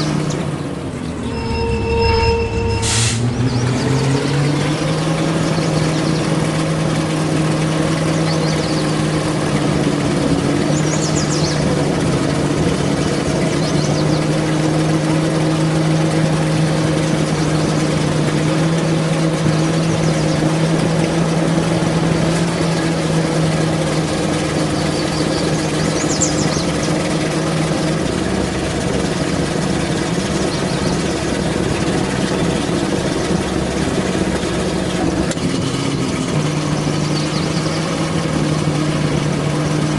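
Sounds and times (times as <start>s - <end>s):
truck engine running: 0.0s - 39.9s
faint high chirps: 1.0s - 4.2s.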